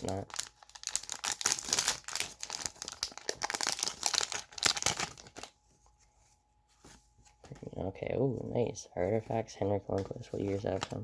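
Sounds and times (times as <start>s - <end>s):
wrapper being torn and crinkled: 0.0s - 5.6s.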